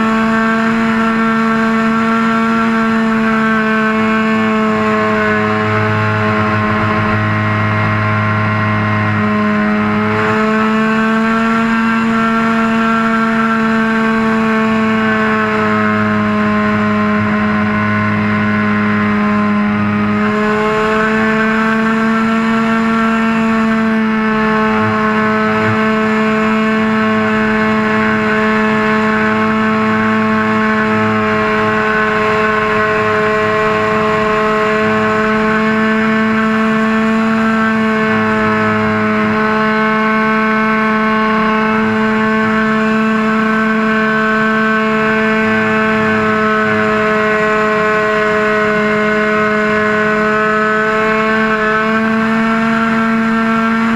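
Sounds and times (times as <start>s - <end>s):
model airplane engine: 0.0s - 53.9s.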